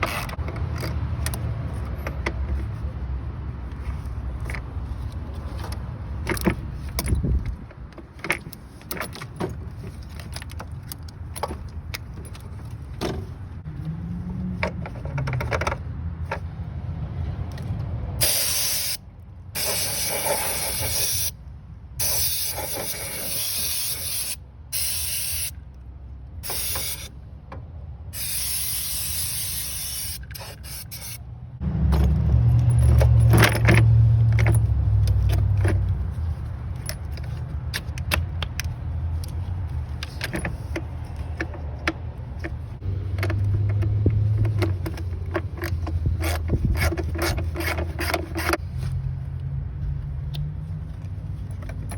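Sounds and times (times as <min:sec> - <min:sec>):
spray can hissing: 0:18.2 - 0:19.0, 0:19.6 - 0:21.4, 0:22.0 - 0:25.5, 0:26.4 - 0:27.1, 0:28.2 - 0:31.2.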